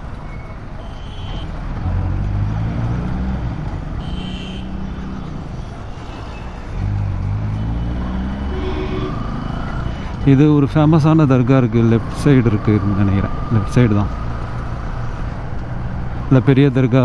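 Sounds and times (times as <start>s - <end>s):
wind and road noise: 0.0s - 17.0s
motorcycle engine revving: 1.3s - 10.3s.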